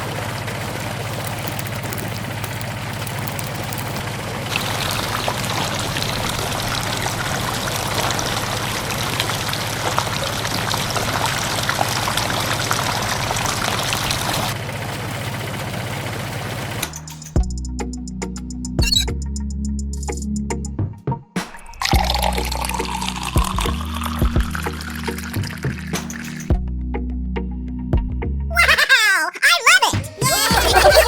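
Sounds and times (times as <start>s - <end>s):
gritty material pouring: 0.0s - 16.7s
low motor hum: 0.0s - 18.1s.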